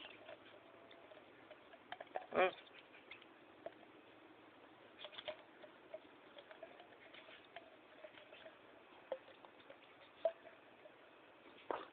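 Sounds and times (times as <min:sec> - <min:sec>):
light scratching and tapping: 0:05.0 - 0:11.9.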